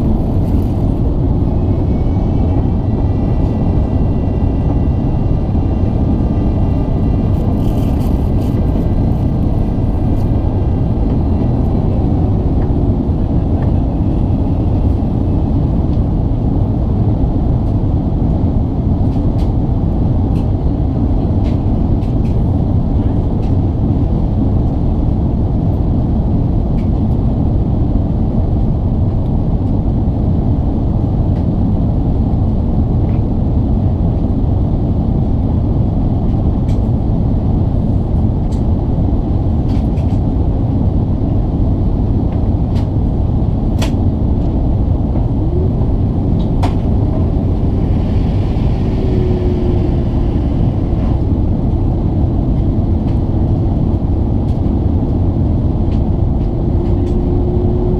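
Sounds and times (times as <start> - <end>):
airplane cabin engine rumble: 0.0 - 57.9.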